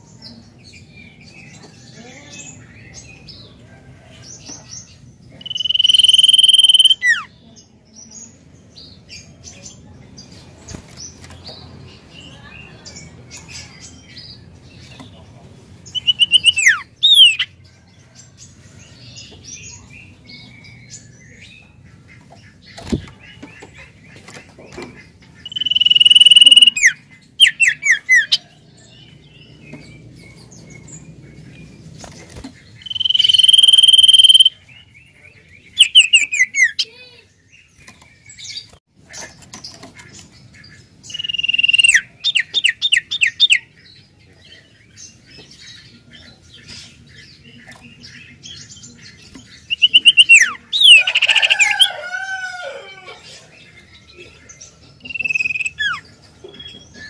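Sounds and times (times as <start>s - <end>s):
bird singing whistled phrases: 5.4s - 7.3s, 16.0s - 17.4s, 25.4s - 27.9s, 32.8s - 34.6s, 41.1s - 42.0s, 49.7s - 51.0s.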